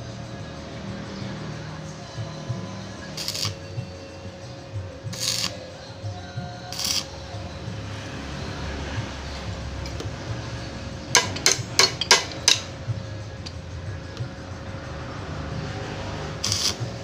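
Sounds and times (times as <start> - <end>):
metal clinking knocks: 11.1 - 12.8.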